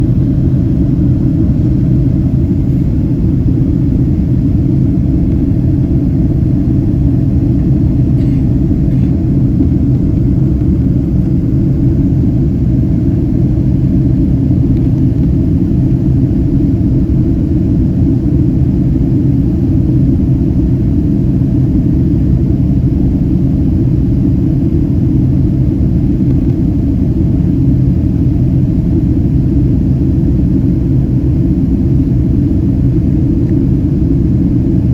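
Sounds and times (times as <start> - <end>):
airliner cabin engine rumble: 0.0 - 34.9.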